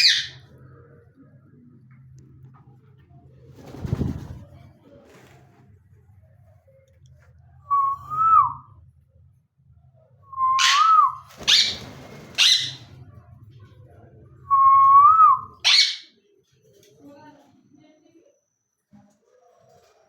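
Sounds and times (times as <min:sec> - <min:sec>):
parrot screeching: 0:00.0 - 0:00.4, 0:10.6 - 0:12.9, 0:15.6 - 0:16.1
parrot whistling: 0:10.4 - 0:11.8.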